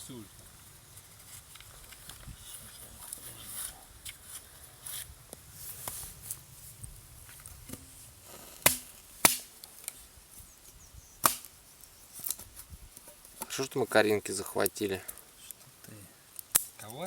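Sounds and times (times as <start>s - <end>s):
axe chopping wood: 8.6s - 9.5s, 11.2s - 11.5s.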